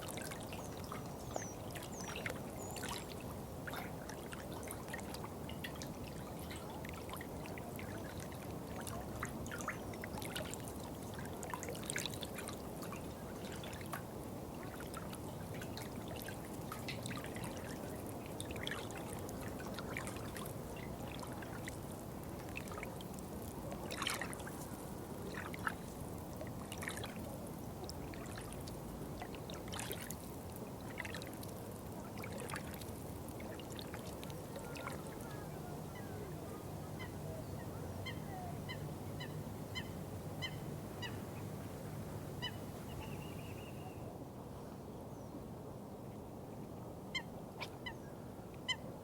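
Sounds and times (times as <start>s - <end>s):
water splashing: 14.6s - 35.4s
water trickling and pouring: 27.8s - 35.2s.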